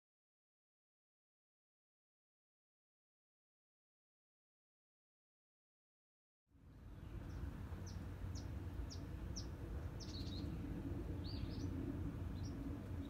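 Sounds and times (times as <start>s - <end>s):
low outdoor rumble: 6.5s - 13.0s
small birds chirping: 6.8s - 13.0s.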